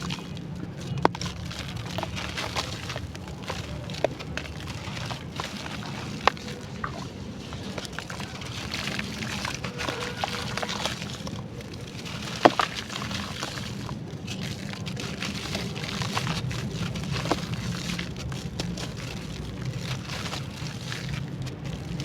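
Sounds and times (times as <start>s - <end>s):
dry clay crunching and crumbling: 0.0s - 22.0s.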